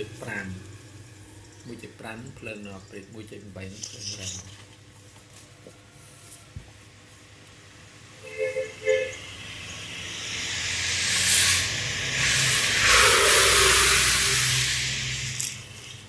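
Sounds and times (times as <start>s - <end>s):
rush of blowing air: 9.9s - 15.5s.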